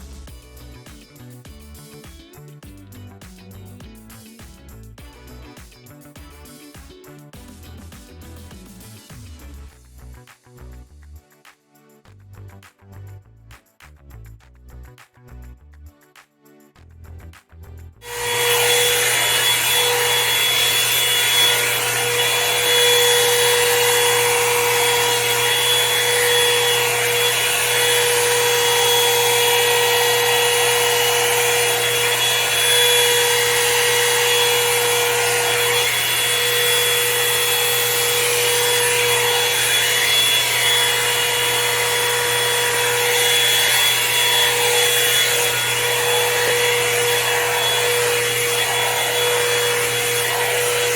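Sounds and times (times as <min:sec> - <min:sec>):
hair dryer brush blowing: 0:18.0 - 0:50.9.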